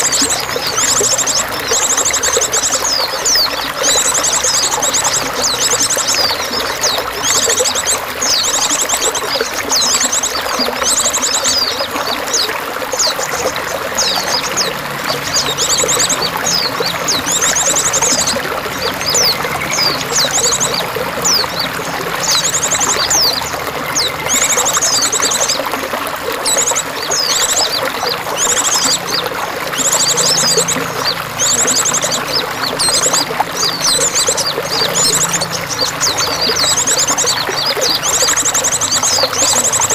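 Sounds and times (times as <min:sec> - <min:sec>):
songbirds trilling and chirping: 0:00.0 - 0:39.9
water trickling and pouring: 0:00.0 - 0:39.9.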